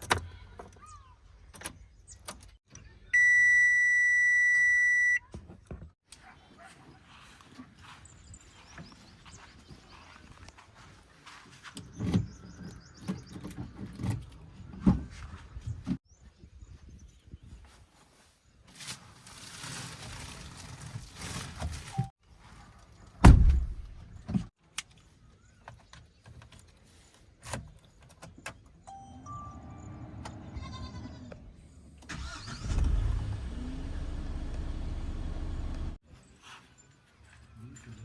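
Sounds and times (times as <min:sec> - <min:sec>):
loud thump: 0:23.2 - 0:24.0
heavy vehicle diesel engines running: 0:32.6 - 0:36.0.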